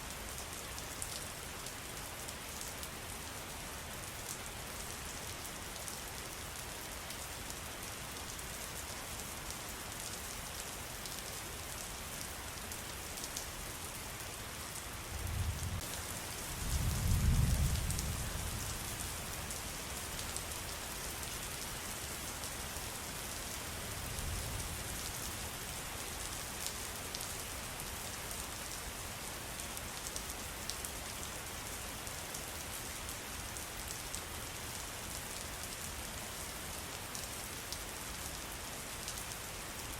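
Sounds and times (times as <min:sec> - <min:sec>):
rain pattering: 0:14.2 - 0:39.9.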